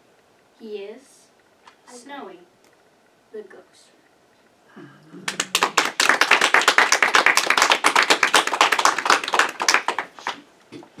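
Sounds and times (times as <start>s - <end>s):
audience clapping: 5.2s - 10.4s.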